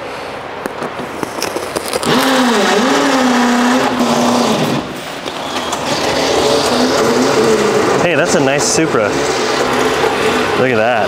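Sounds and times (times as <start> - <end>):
cardboard box tape pulled: 1.1 - 7.5
car engine running: 1.5 - 11.0.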